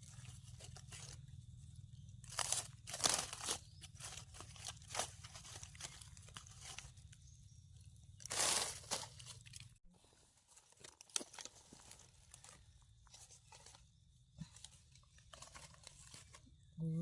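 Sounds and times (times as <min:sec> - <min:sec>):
dry leaves crunching and rustling: 0:02.2 - 0:07.3, 0:08.1 - 0:09.8, 0:10.4 - 0:13.8.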